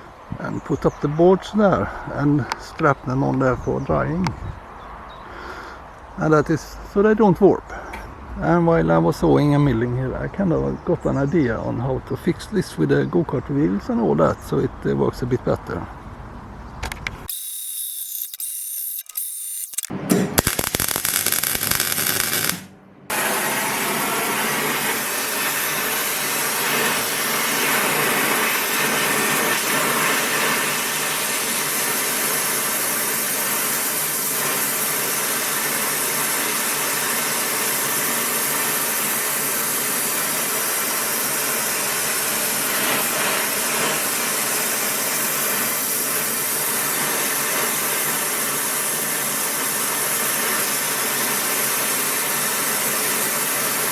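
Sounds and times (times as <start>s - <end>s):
power tool running: 17.3s - 53.9s.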